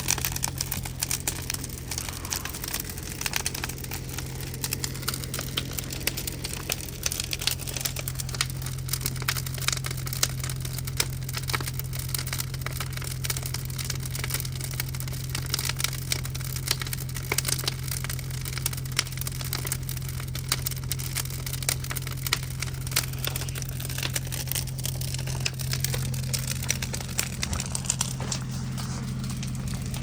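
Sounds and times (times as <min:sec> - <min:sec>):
steady low hum: 0:00.0 - 0:12.2, 0:21.0 - 0:30.0
bonfire wood crackling and popping: 0:00.0 - 0:30.0.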